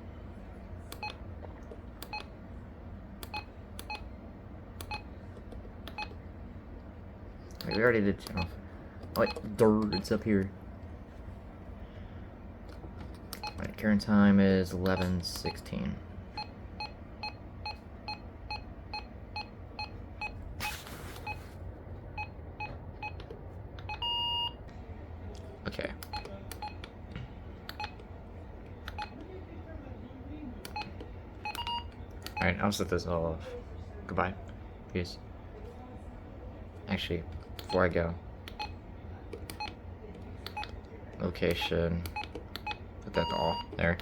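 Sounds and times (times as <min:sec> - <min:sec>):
faint low hum: 0:00.0 - 0:44.0
radio key beeps: 0:42.1 - 0:43.8.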